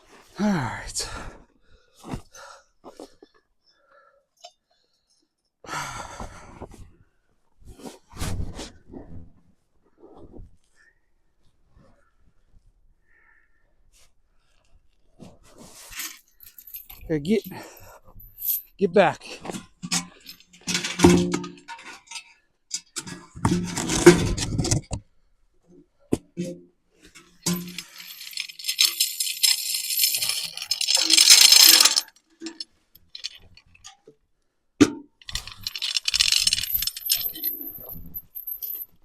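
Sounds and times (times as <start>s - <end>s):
small metal objects jingling: 16.0s - 18.8s, 27.5s - 33.8s, 35.2s - 38.8s.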